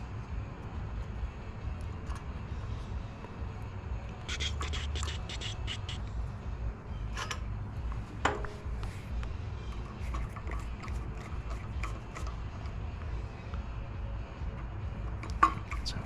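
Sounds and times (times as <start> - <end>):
metal parts clicking and scraping: 7.0 - 8.6, 9.7 - 12.7, 15.0 - 16.0.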